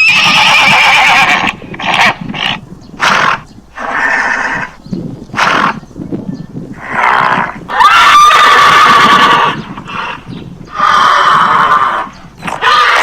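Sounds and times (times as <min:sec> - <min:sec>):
loud farm animal cries: 0:00.0 - 0:02.2, 0:06.9 - 0:13.0.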